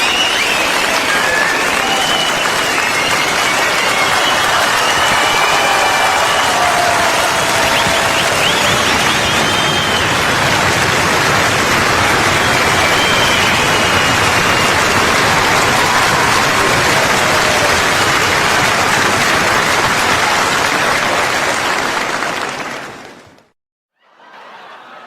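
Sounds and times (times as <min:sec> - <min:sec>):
crowd applause: 0:00.0 - 0:25.0.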